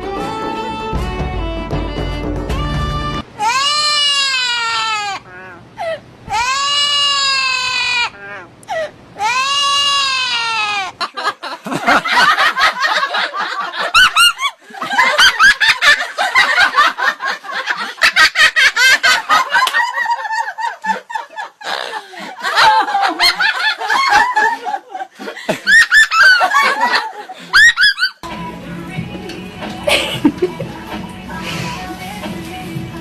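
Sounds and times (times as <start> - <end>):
high-pitched wailing cries: 3.3 - 11.0
choppy cackling laughter: 10.6 - 28.2, 29.8 - 30.8.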